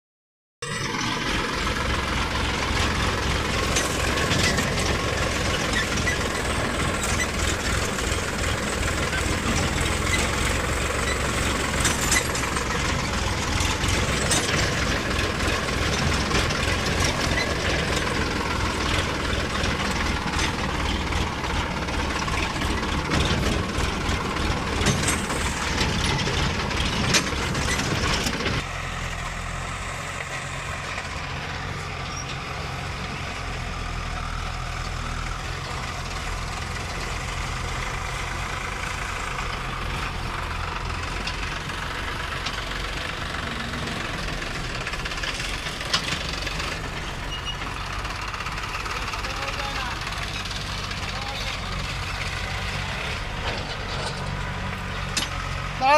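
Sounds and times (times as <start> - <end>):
diesel backhoe engine running hard: 0.6 - 55.9
metal knocks and clanks: 2.7 - 28.7.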